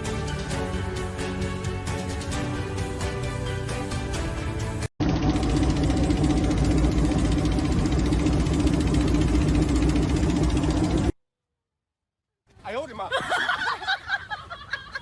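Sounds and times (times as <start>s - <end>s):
background music: 0.0s - 4.9s
vehicle engine running: 5.0s - 11.2s.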